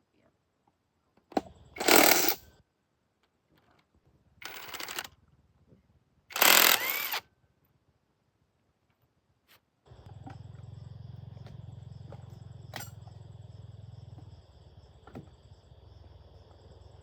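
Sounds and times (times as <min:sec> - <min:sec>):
handheld power tool whining: 0:01.8 - 0:02.4, 0:04.4 - 0:05.1, 0:06.3 - 0:07.2
sharp clicks: 0:06.3 - 0:07.2.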